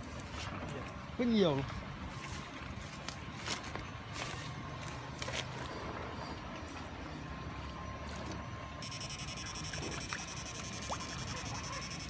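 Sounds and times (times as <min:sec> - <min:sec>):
high steady whine: 0:08.8 - 0:12.0
small motor humming: 0:08.8 - 0:12.0.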